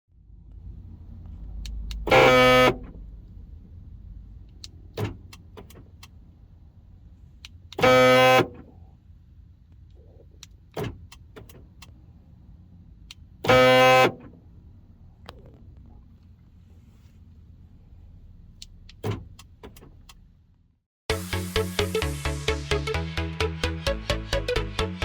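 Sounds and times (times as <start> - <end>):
door lock actuator buzzing: 2.0 - 3.0, 7.7 - 8.7, 13.4 - 14.4.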